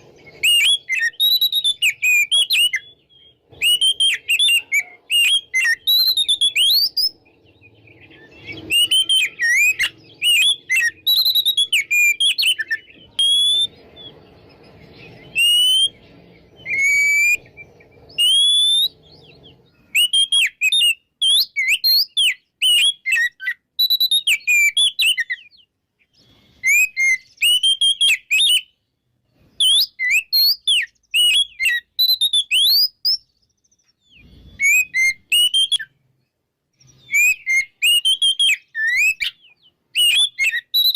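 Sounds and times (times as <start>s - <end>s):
bird singing whistled phrases: 0.0s - 36.0s, 36.8s - 40.9s.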